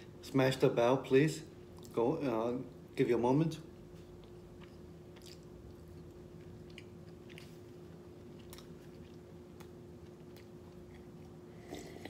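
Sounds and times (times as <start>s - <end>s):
faint steady hum: 0.0s - 12.0s
chewing food: 3.7s - 12.0s.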